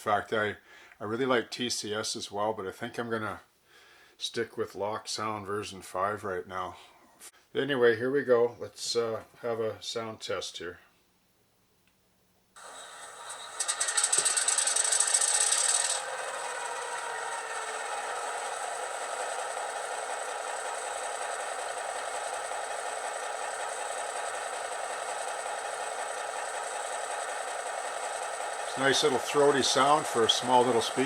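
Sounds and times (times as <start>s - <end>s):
model diesel engine start-up: 12.6s - 31.0s
hissing burst: 28.0s - 31.0s.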